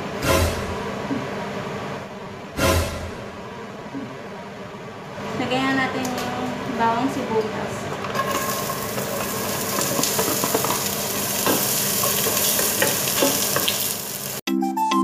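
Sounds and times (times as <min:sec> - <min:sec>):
wooden spatula scraping and tapping: 0:08.0 - 0:13.9
food sizzling in hot oil: 0:08.1 - 0:14.4.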